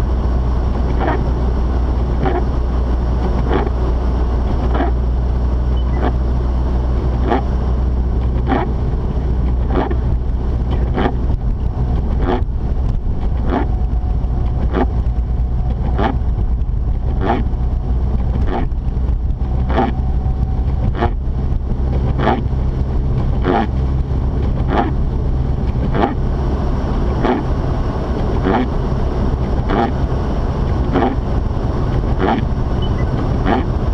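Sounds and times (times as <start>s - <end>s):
engine and road drone: 0.0s - 33.9s
windshield wipers sweeping: 0.0s - 33.9s.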